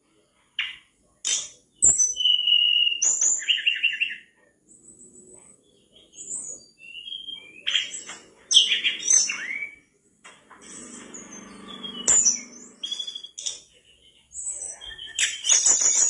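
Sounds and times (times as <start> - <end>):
bird singing whistles and trills: 1.7 - 4.3, 5.7 - 9.9, 10.6 - 13.7, 14.3 - 16.0.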